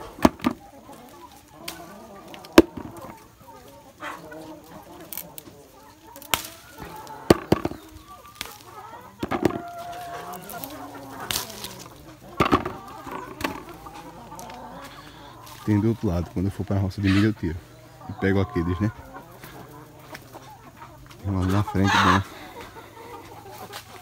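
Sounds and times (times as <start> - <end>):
chickens clucking: 0.0 - 24.0
rooster crowing: 8.8 - 15.4.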